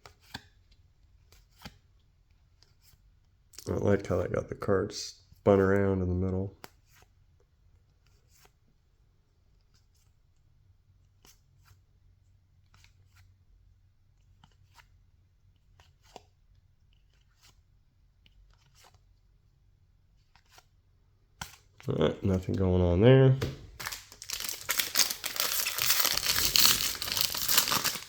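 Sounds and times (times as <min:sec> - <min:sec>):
trading cards flipped by hand: 0:01.2 - 0:01.8, 0:16.9 - 0:19.1, 0:20.2 - 0:20.8, 0:23.4 - 0:28.0.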